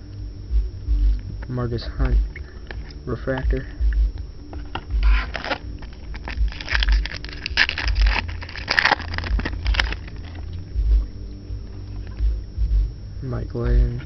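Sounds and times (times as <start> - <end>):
trading cards scraping and clicking: 4.6 - 10.6.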